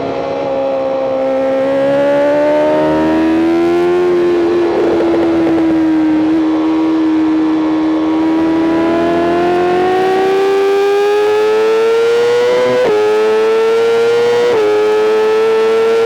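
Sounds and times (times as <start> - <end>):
motorcycle engine at high revs: 0.0 - 16.0.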